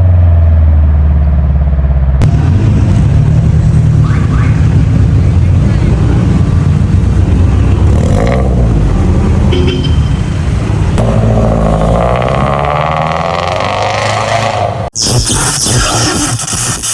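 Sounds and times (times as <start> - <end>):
car exhaust drone: 0.0 - 15.0.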